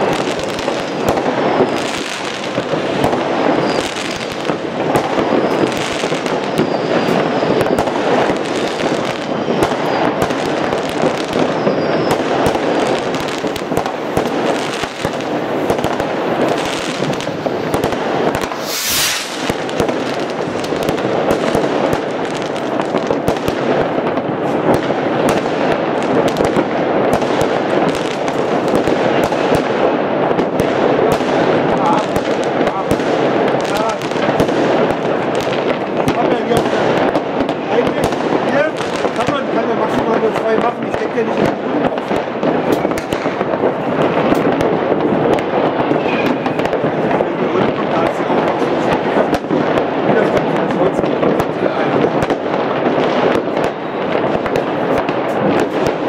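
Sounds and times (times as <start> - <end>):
fireworks bangs and crackling: 0.0 - 56.0
high hiss: 18.4 - 19.5.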